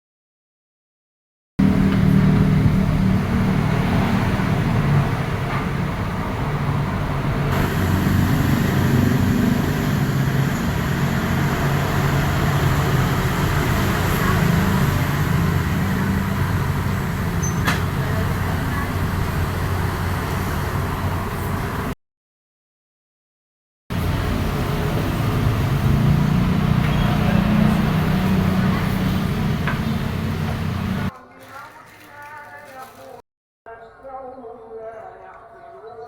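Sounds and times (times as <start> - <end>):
engine drone: 1.6 - 22.0, 23.9 - 31.1
road traffic noise: 1.6 - 22.0, 23.9 - 31.1.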